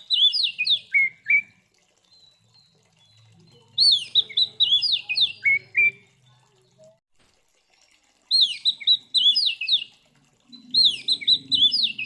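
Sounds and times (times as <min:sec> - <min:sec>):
bird singing whistled notes: 0:00.0 - 0:01.5, 0:02.1 - 0:06.2, 0:08.3 - 0:09.9, 0:10.6 - 0:12.0.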